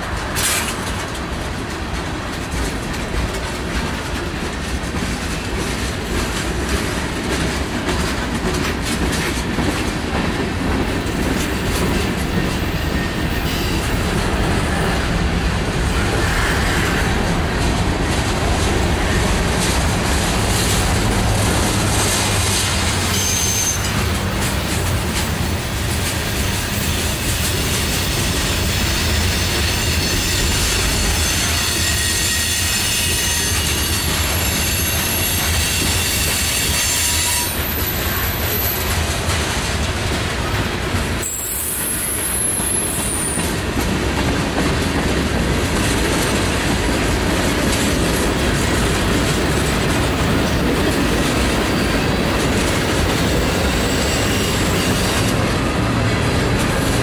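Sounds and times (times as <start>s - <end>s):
steel wheels rumbling and clattering: 0.0s - 57.0s
high-pitched wheel squeal: 23.1s - 24.0s, 29.2s - 38.8s, 41.2s - 43.4s, 53.6s - 55.3s.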